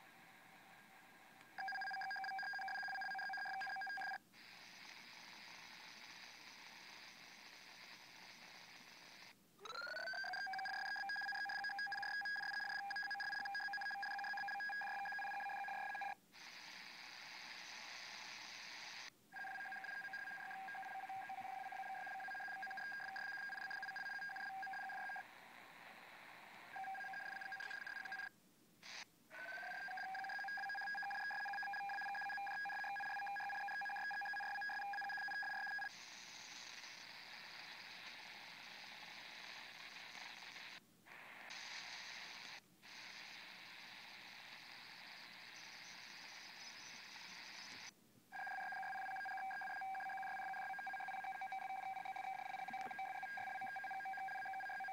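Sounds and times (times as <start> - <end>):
hiss-like data noise: 0.0 - 9.4, 10.0 - 29.1, 29.7 - 47.9
two-pitch radio beeps: 10.1 - 16.2, 19.4 - 25.2, 48.4 - 54.9.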